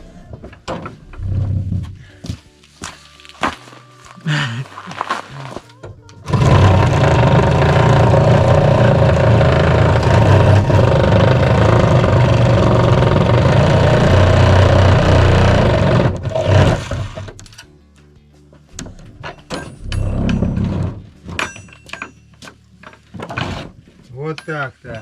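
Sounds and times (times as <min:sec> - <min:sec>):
power tool cutting: 0:06.3 - 0:17.4.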